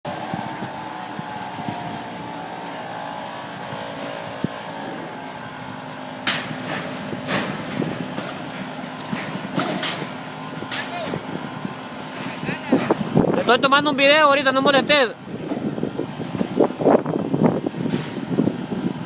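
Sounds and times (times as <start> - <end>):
machine hum: 0.0 - 19.0
metal knocks and clanks: 6.2 - 10.9.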